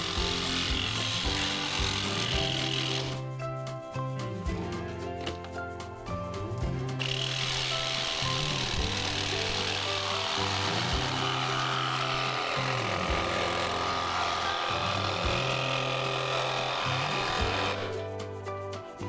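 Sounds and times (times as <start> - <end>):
power tool rasping: 0.0 - 3.4, 6.9 - 18.4
background music with bass: 0.0 - 19.0.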